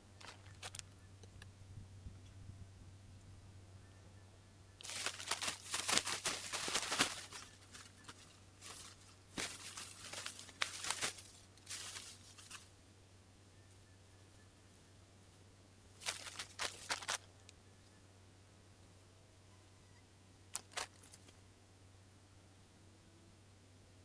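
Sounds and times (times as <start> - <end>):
rustling and crunching: 0.0 - 1.0, 4.8 - 12.8, 16.0 - 17.5, 20.5 - 21.4
low steady hum: 0.0 - 24.0.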